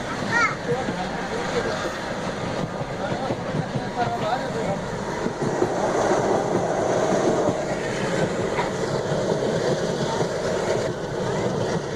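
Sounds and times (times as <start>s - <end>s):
train wheels rumbling on track: 0.0s - 11.9s.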